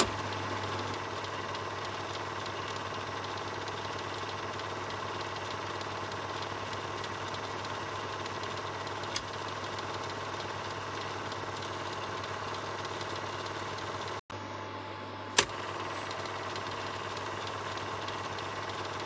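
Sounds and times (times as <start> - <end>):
film projector running: 0.0 - 14.2, 14.8 - 19.0.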